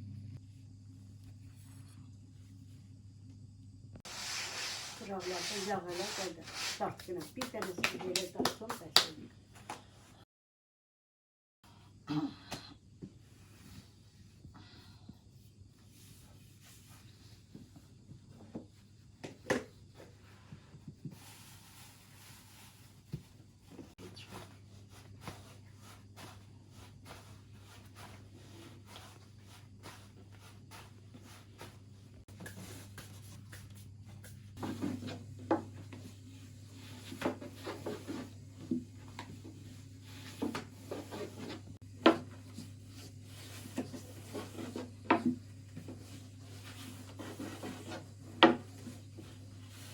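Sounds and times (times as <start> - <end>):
steady low hum: 0.0 - 6.4
hands knocking and tapping things: 7.0 - 9.2.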